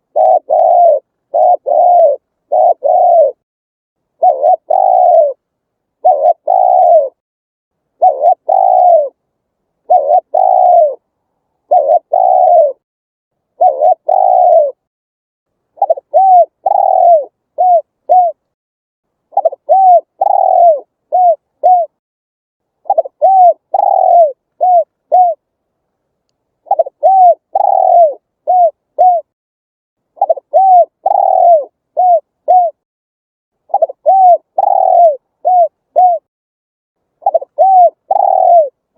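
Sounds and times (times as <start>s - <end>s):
dove cooing: 0.0s - 3.4s, 4.2s - 5.4s, 6.0s - 7.2s, 8.0s - 9.2s, 9.8s - 11.0s, 11.6s - 12.8s, 13.5s - 14.9s, 15.8s - 18.5s, 19.3s - 22.0s, 22.8s - 25.4s, 26.6s - 29.3s, 30.2s - 32.8s, 33.7s - 36.3s, 37.2s - 38.8s.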